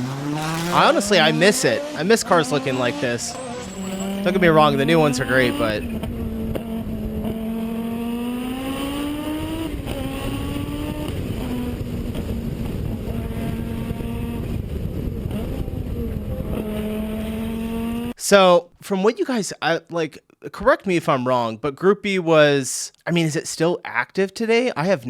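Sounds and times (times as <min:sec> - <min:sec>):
rally car engine revving high: 0:00.0 - 0:18.2.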